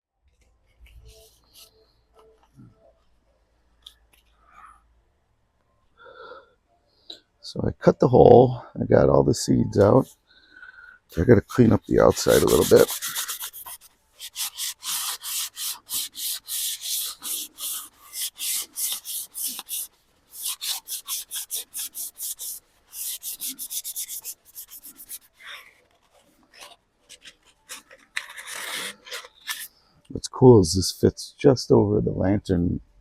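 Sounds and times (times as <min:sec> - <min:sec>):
hand-sanding dried gourd shell: 0:11.2 - 0:29.7.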